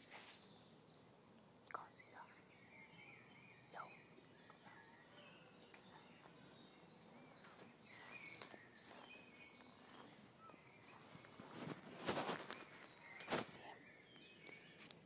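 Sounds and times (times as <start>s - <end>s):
soft rustles: 0.0s - 0.5s, 7.3s - 13.7s
faint bird chirps: 0.0s - 15.0s.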